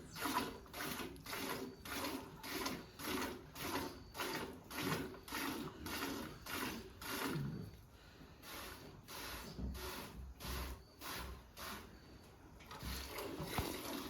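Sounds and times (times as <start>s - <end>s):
milk squirting into a pail: 0.0s - 7.6s, 12.6s - 14.0s.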